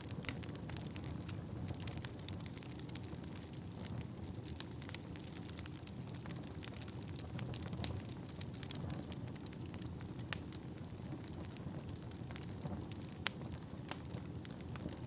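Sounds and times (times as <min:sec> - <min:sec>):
fire crackling and popping: 0:00.0 - 0:15.0
wood fire flames rushing: 0:00.1 - 0:15.0.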